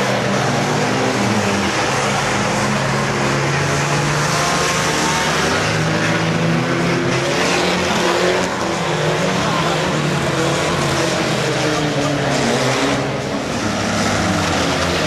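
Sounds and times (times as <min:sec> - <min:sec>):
racing car engines revving: 0:00.0 - 0:15.0.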